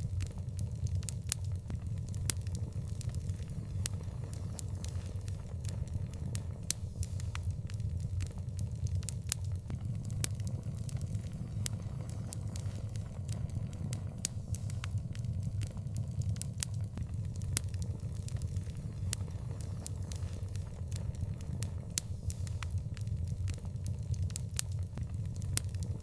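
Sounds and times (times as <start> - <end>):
low fire rumble: 7.4 - 26.0
wood fire crackling and popping: 7.6 - 26.0.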